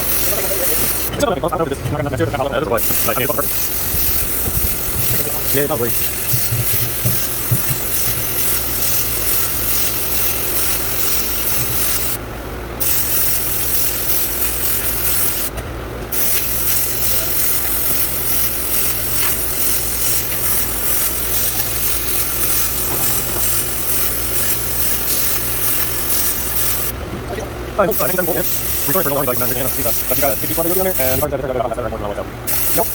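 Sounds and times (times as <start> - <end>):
sandblaster hissing blast: 0.0 - 1.2, 2.8 - 12.2, 12.8 - 15.5, 16.1 - 27.0, 27.9 - 31.3, 32.5 - 32.9.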